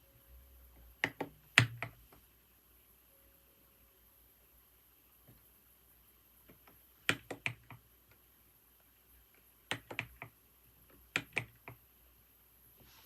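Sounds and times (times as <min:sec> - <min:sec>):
computer keyboard typing: 0:01.0 - 0:02.0, 0:06.5 - 0:07.9, 0:09.6 - 0:11.8.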